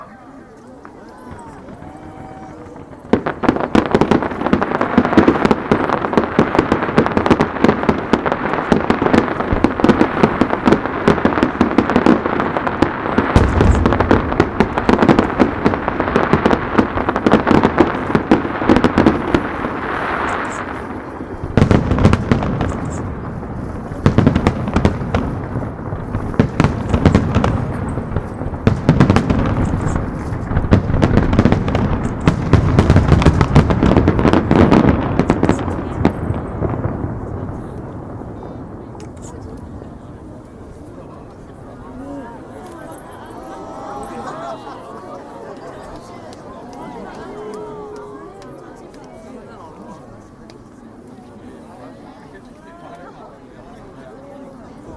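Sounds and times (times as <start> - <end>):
fireworks bangs and crackling: 0.7 - 54.9
deep firework booms: 1.4 - 42.0.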